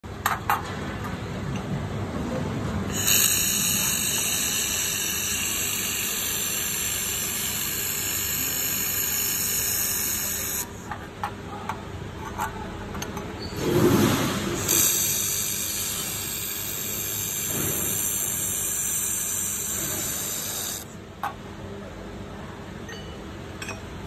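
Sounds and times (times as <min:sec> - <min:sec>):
laser welding hiss: 0:02.9 - 0:10.8, 0:14.6 - 0:20.9.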